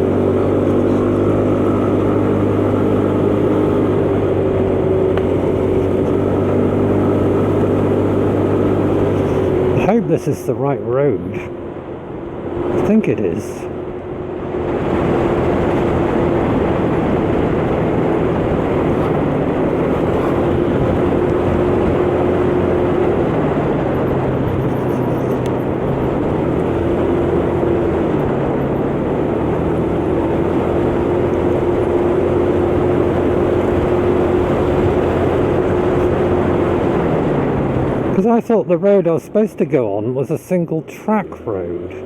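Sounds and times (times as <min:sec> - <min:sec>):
motor scooter engine running: 0:00.0 - 0:09.9, 0:15.2 - 0:36.8
wind and road noise: 0:00.0 - 0:42.0.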